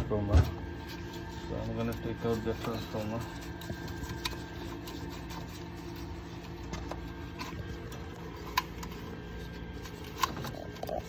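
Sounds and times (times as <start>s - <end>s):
furnace humming: 0.0s - 11.0s.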